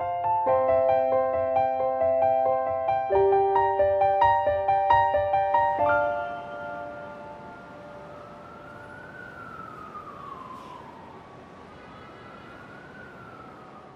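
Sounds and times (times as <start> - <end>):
held piano chord: 0.0 - 9.0
siren wailing: 5.8 - 13.9.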